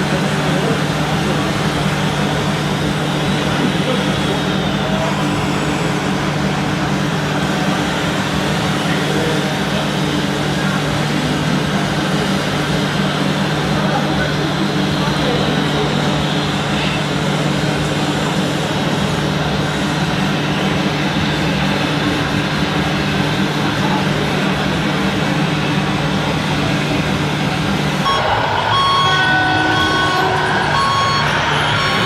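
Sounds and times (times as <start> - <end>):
short repeated beeps: 28.1 - 32.0.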